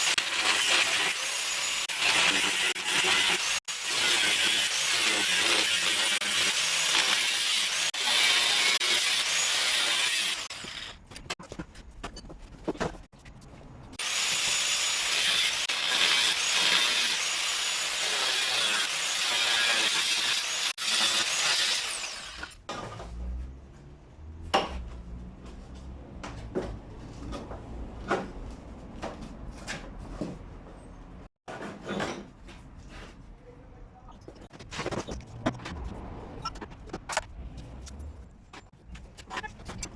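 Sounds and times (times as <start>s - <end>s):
power tool cutting metal: 0.0s - 11.0s, 14.0s - 22.6s.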